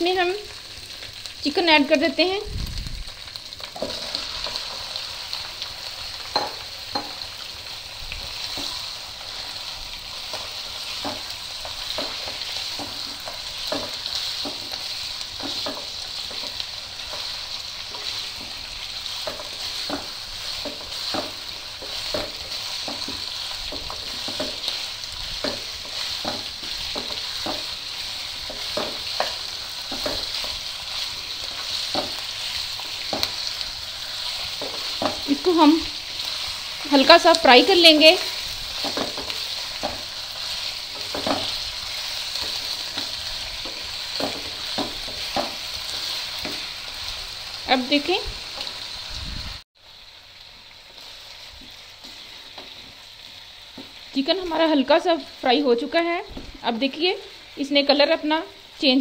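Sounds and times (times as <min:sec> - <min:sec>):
chicken sizzling in hot oil: 0:00.0 - 0:59.0
spatula knocking and scraping pan: 0:03.7 - 0:04.8, 0:06.2 - 0:07.4, 0:08.2 - 0:35.6, 0:36.2 - 0:47.2.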